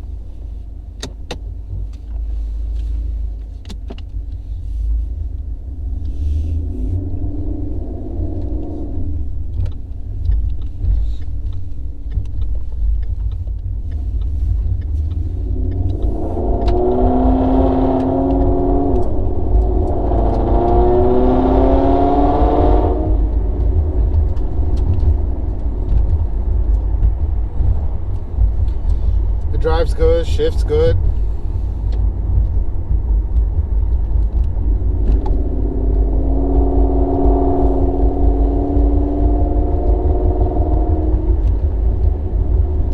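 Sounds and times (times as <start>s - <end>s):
car engine accelerating: 0.0s - 42.9s
low road drone: 0.0s - 42.9s.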